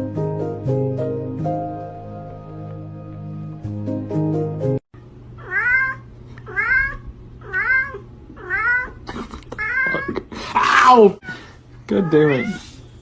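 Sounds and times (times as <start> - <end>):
music: 0.0 - 4.8
cat meowing: 5.4 - 9.0, 11.2 - 12.8.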